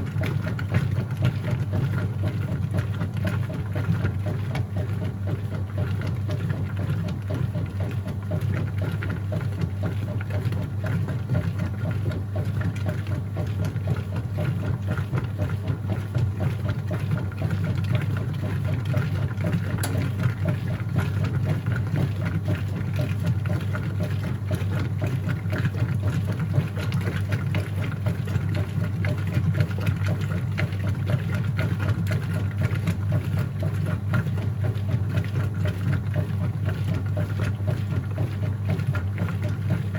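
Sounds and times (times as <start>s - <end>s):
washing machine motor hum: 0.0s - 39.9s.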